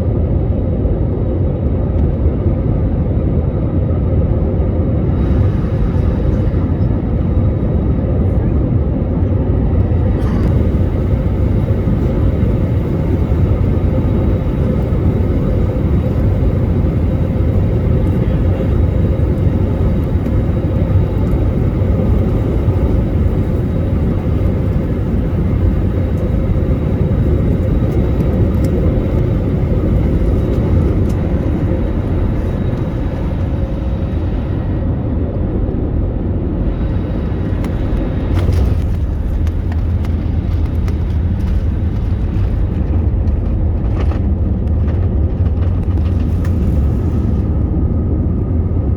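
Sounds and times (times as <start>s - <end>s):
airliner cabin rumble: 0.0s - 48.9s
faint steady hum: 4.2s - 48.9s.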